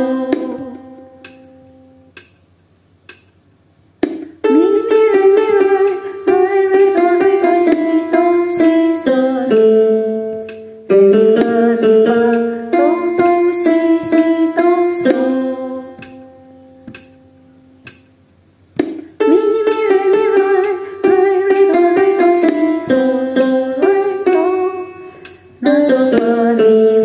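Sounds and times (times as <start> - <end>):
woman singing: 0.0 - 1.1, 4.4 - 10.3, 10.9 - 16.1, 19.2 - 25.0, 25.6 - 27.0.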